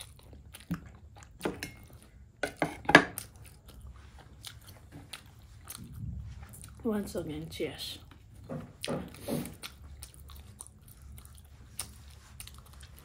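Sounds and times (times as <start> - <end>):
wet chewing with mouth smacks: 0.0 - 2.4, 3.2 - 6.8, 8.0 - 13.0.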